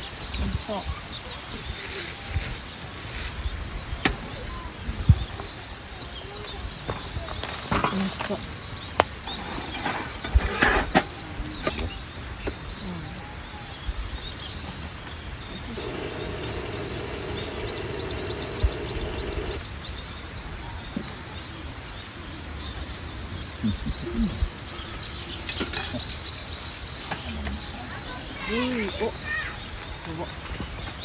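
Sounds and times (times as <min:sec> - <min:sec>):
small bird calling: 0:15.4 - 0:19.6.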